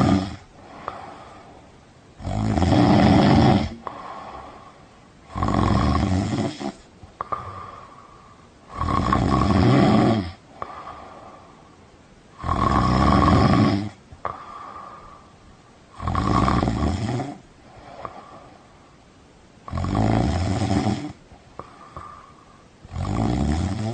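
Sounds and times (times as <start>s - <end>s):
person snoring: 0.0s - 1.5s, 2.2s - 11.5s, 12.3s - 15.3s, 15.9s - 18.6s, 19.6s - 23.9s
soft breathing: 0.0s - 2.0s, 3.4s - 5.6s, 6.4s - 8.8s, 10.4s - 12.4s, 13.9s - 16.0s, 17.2s - 19.4s, 21.4s - 22.9s.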